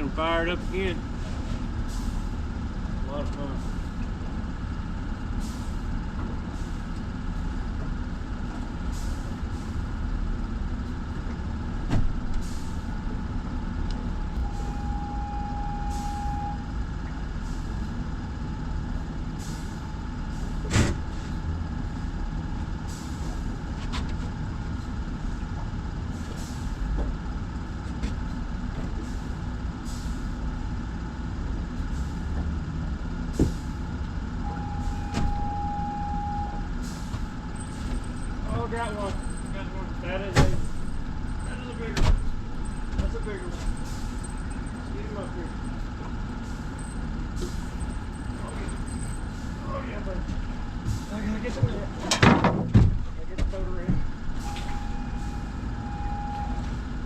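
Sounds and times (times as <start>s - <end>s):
steady low rumble: 0.0s - 57.0s
brief steady tone: 14.4s - 16.7s, 34.4s - 36.7s, 54.4s - 56.9s.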